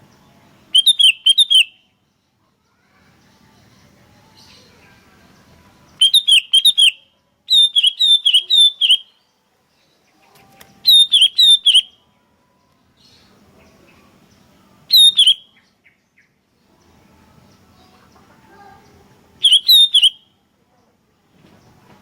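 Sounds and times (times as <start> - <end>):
bulbul chirping: 0.7 - 1.8, 6.0 - 9.1, 10.9 - 11.9, 14.9 - 15.5, 19.4 - 20.2.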